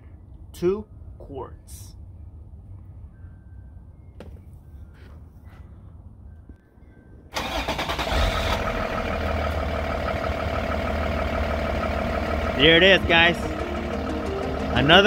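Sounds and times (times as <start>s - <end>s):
diesel engine starting and idling: 7.3s - 15.0s.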